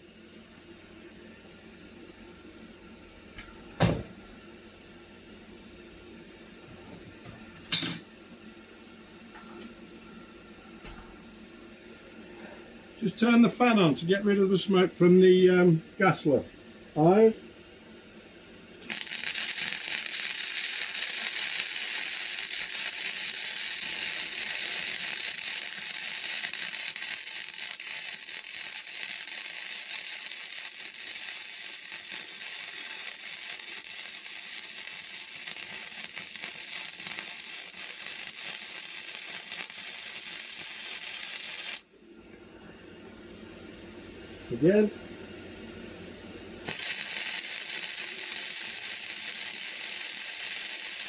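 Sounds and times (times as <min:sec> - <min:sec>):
welding arc crackling: 0:18.8 - 0:41.9, 0:46.6 - 0:51.0.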